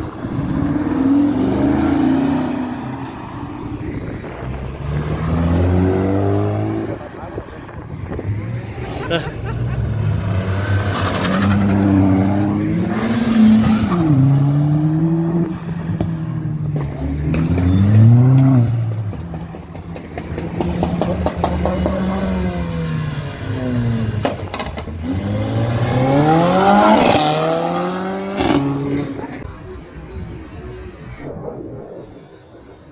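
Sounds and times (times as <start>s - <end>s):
cars accelerating past: 0.0s - 32.9s
engines revving through gears: 4.4s - 7.0s, 16.7s - 19.0s, 24.9s - 29.5s.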